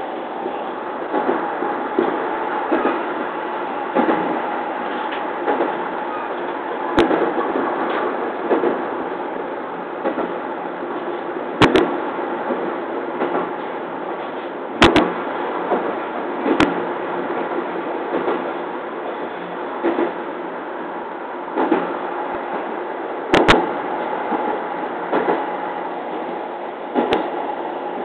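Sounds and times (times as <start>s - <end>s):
train cab rumble: 0.0s - 28.0s
wheels clicking over rail joints: 3.9s - 8.9s.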